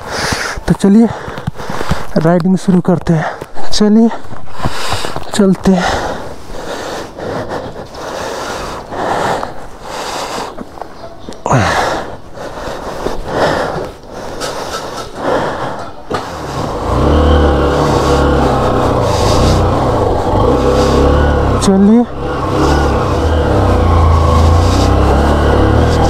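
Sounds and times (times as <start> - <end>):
motorcycle engine starting and running: 15.4 - 26.0.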